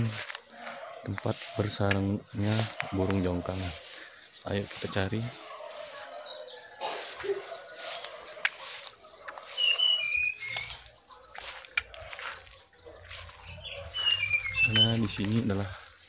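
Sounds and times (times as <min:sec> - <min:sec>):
leaves and brush rustling: 0:00.0 - 0:16.0
bird chirping whistles: 0:09.0 - 0:11.3, 0:13.6 - 0:15.1.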